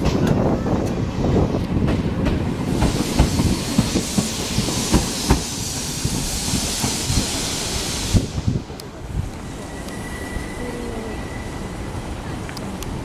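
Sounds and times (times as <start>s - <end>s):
train wheels clicking over rail joints: 0.0s - 10.0s
steam hiss: 2.6s - 8.6s.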